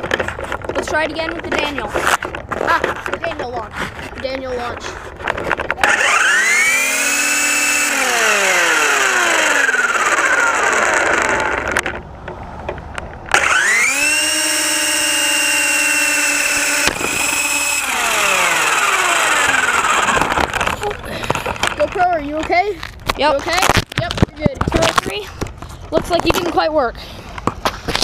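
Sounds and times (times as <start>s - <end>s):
rc helicopter motor whine: 5.8s - 12.0s, 13.3s - 21.7s.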